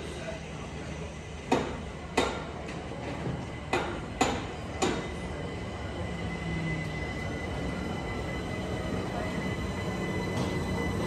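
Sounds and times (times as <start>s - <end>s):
thin steady train whine: 0.0s - 11.0s
electric train pulling in: 2.8s - 11.0s
train sharp clacks: 3.7s - 5.3s.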